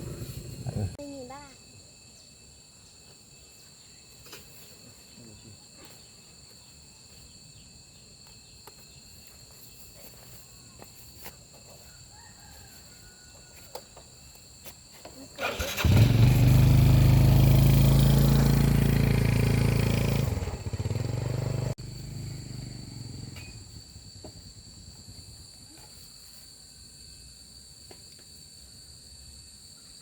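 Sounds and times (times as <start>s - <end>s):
motorcycle engine starting and running: 0.0s - 1.0s, 15.4s - 24.4s
insect chirring: 21.8s - 30.0s.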